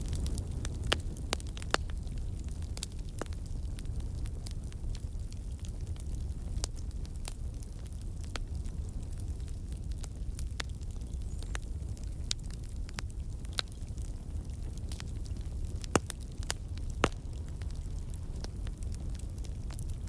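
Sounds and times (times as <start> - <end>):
low rumble of flame: 0.0 - 20.0
wood crackling and popping: 0.0 - 20.0.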